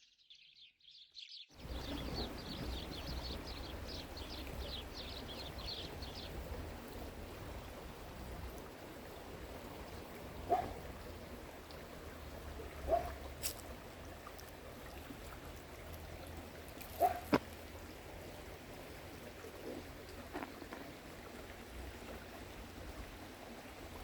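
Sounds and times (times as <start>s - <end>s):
bird chirping: 0.0s - 7.8s
stream of water running: 1.6s - 24.0s
water gurgles and splashes: 1.6s - 24.0s.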